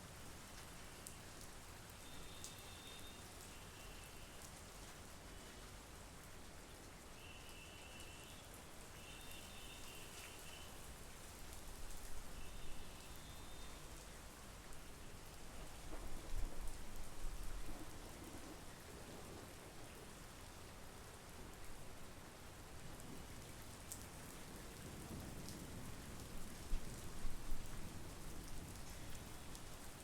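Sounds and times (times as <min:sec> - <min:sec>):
rain hissing: 0:02.0 - 0:05.6, 0:07.2 - 0:17.2.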